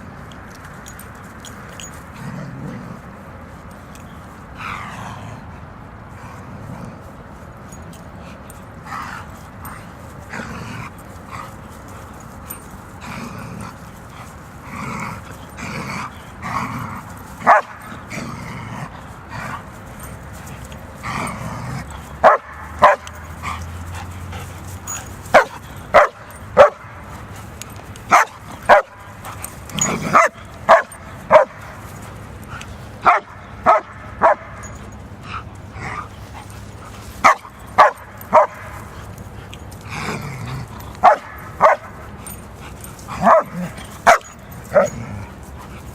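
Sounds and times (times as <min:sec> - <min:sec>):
dog barking: 0:17.4 - 0:17.8, 0:22.2 - 0:23.2, 0:25.3 - 0:26.8, 0:28.1 - 0:29.0, 0:30.1 - 0:31.6, 0:33.0 - 0:34.6, 0:37.2 - 0:38.7, 0:41.0 - 0:41.9, 0:43.2 - 0:44.9.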